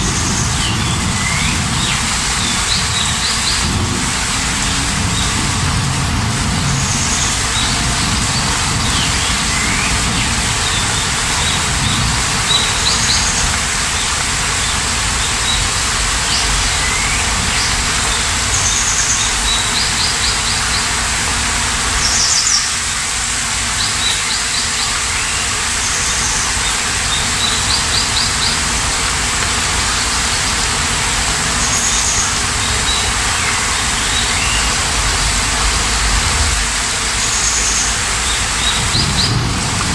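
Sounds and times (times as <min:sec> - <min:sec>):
small birds chirping: 0:00.0 - 0:21.0, 0:37.1 - 0:39.9
steady rain falling: 0:00.0 - 0:39.9.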